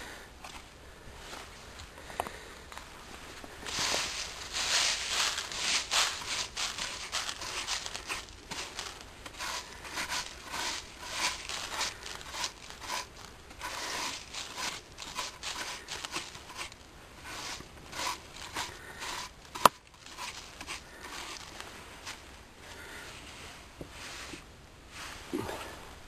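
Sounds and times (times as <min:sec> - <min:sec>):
dry material crinkling: 0:03.6 - 0:22.4.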